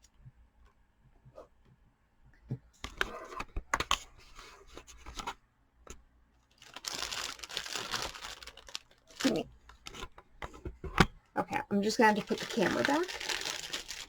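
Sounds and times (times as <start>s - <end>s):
packaging rustling: 6.5s - 10.1s, 12.0s - 14.0s.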